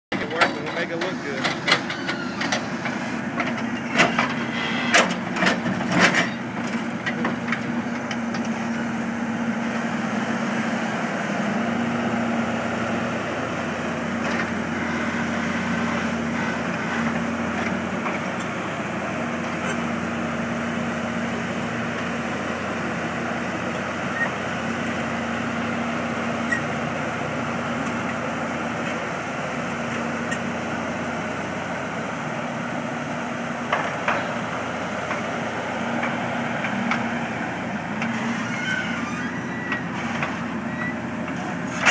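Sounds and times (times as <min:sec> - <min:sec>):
digging machine engine running: 0:00.1 - 0:41.9.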